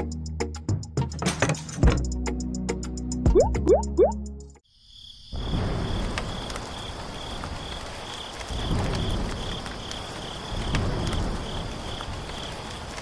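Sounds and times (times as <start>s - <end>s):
insect chirping: 4.6s - 12.9s.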